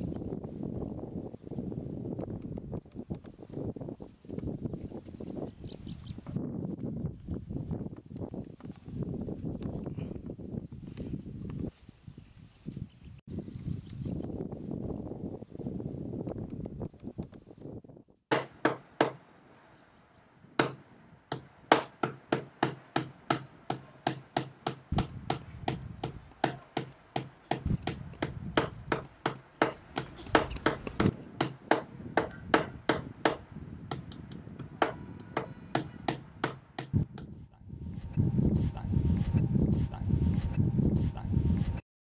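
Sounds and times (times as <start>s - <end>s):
wooden pestle pounding in mortar: 20.6s - 34.0s.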